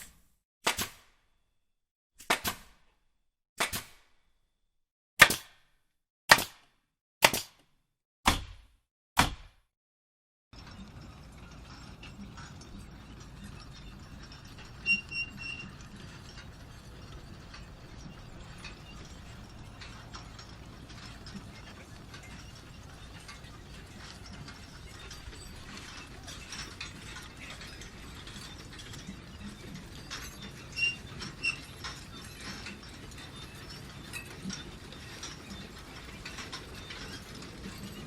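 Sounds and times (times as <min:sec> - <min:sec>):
machine rattling clicks: 0:10.6 - 0:38.0
short squeak: 0:14.6 - 0:15.9, 0:30.0 - 0:32.6.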